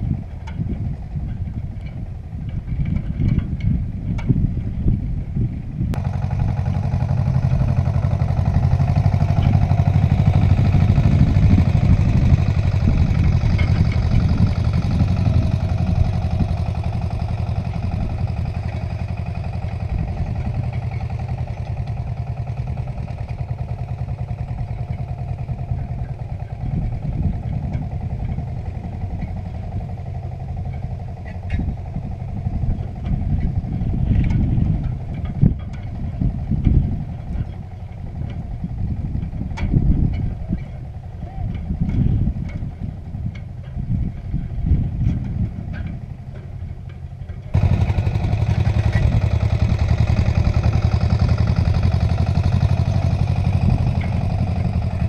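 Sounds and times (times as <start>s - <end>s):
tractor engine running under load: 0.0s - 55.0s.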